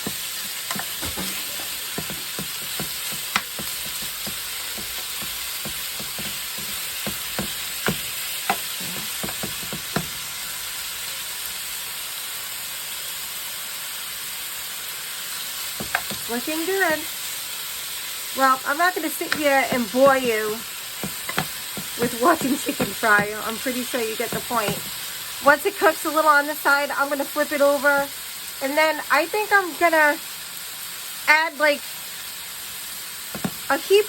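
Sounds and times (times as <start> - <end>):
chicken sizzling in oil: 0.0 - 34.0.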